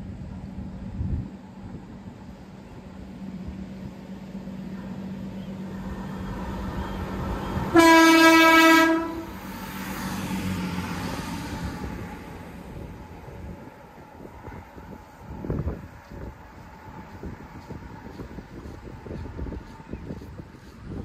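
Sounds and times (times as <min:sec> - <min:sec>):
train engine and rail noise: 0:00.0 - 0:21.0
train horn blast: 0:07.4 - 0:09.5.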